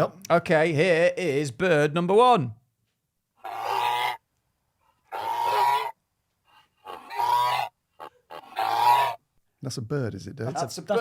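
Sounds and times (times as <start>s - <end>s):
goose honking: 5.1s - 5.9s, 6.8s - 9.2s.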